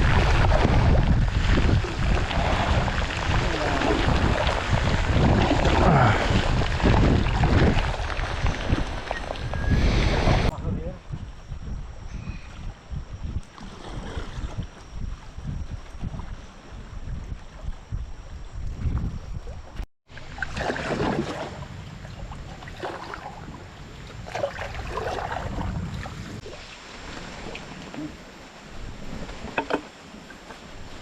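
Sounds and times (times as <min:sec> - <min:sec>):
water rushing and splashing: 0:00.0 - 0:10.5, 0:20.1 - 0:31.0
wind rumbling on microphone: 0:00.0 - 0:31.0.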